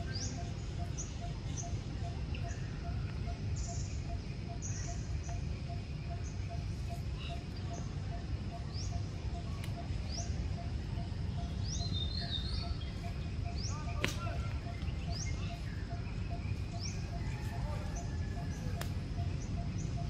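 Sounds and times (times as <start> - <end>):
bird chirping: 0.0 - 20.0
faint pulsing tone: 0.0 - 20.0
steady low rumble: 0.0 - 20.0.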